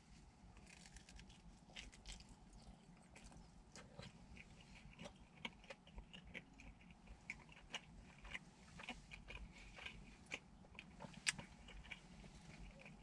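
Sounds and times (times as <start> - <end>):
person chewing: 0.6 - 13.0.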